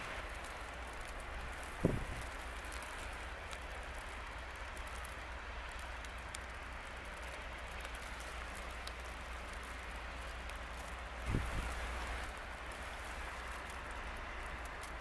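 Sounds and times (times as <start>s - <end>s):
low steady rumble: 0.0s - 15.0s
rain hissing: 0.0s - 15.0s
raindrop ticks: 0.0s - 15.0s.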